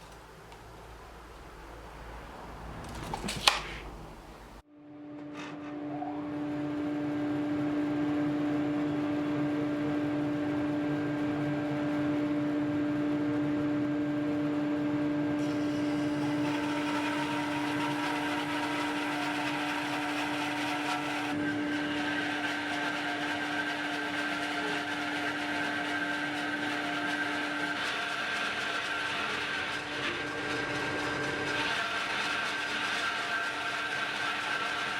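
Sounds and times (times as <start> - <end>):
power tool humming: 15.4 - 34.9.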